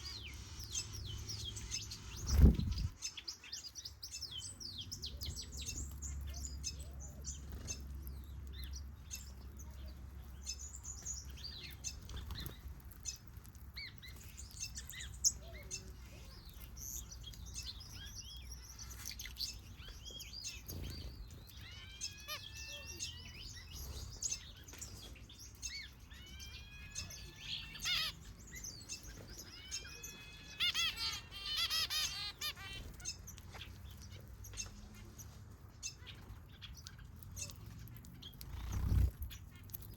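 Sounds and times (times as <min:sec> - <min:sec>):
finches chirping: 0:14.2 - 0:35.2.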